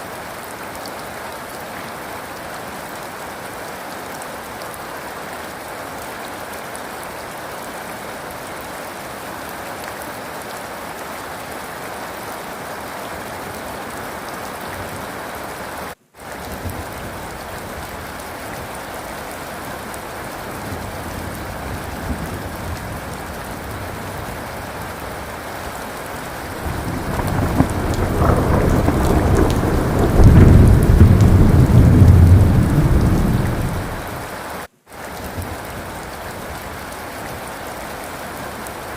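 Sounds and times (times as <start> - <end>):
rain falling: 0.0 - 38.9
thunder rumbling: 26.2 - 34.2.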